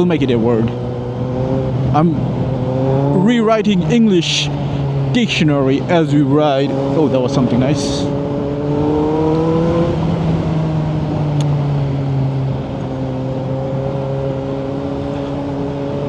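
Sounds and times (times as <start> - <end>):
motorcycle engine under way: 0.0 - 16.0.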